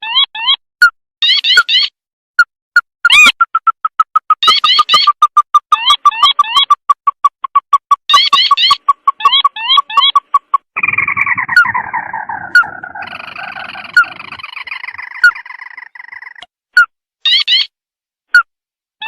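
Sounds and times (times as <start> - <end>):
recorded bird calls: 1.2 - 2.0, 3.1 - 17.7
chattering bird trill: 3.1 - 16.4, 17.3 - 17.7.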